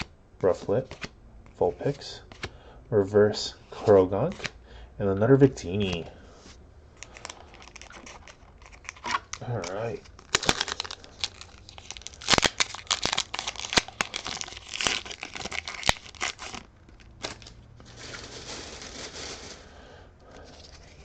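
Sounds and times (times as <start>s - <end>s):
cards rustling: 0.4s - 2.5s, 4.2s - 4.6s, 7.0s - 19.7s
foil wrapper crinkling and tearing: 7.0s - 19.7s.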